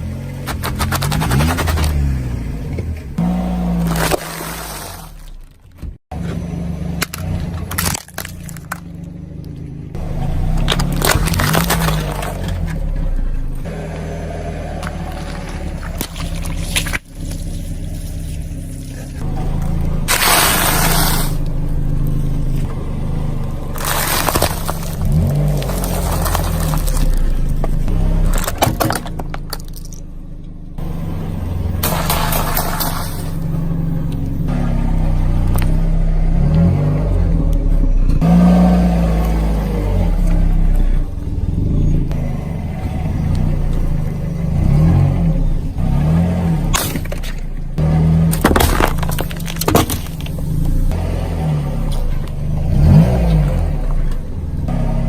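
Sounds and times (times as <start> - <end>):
vehicle engine running: 0.0 - 55.0
objects cracking as crushed: 0.4 - 2.2, 7.0 - 9.1, 10.5 - 12.9, 23.6 - 30.1, 48.2 - 50.8
sharp cracking crunching snaps: 7.0 - 9.6.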